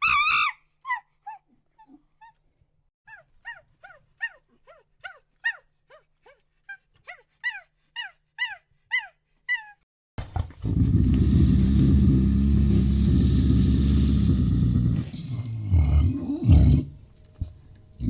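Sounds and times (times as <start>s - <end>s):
animal yelping calls: 0.0s - 2.4s, 7.1s - 9.8s
loud steady rumbling: 10.8s - 15.0s.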